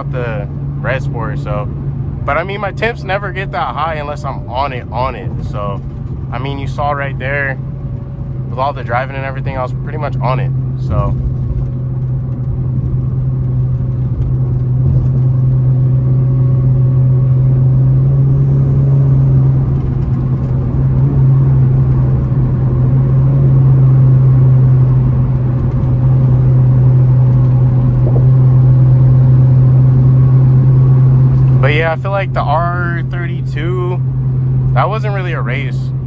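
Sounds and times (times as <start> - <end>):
car engine drone: 0.0 - 36.0
road noise: 0.0 - 36.0.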